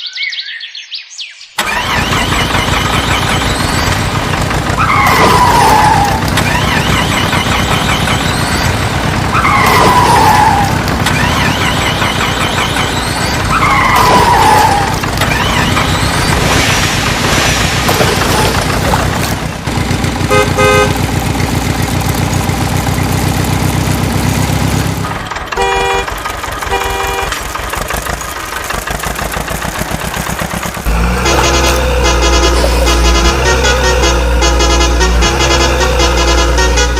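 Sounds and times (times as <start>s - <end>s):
cartoon engine running: 1.6s - 36.9s
horn toots: 17.3s - 23.2s, 24.7s - 27.6s, 30.8s - 36.9s.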